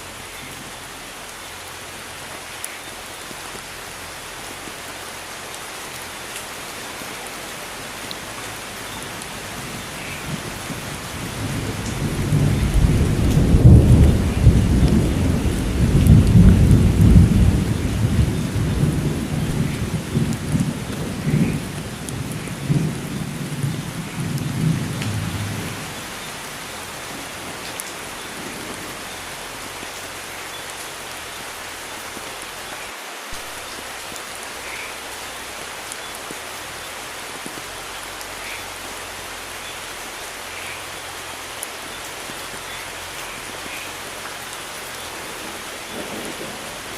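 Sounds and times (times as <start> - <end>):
rain falling: 0.0 - 46.9
thunder rolling: 9.4 - 29.0, 45.4 - 46.9.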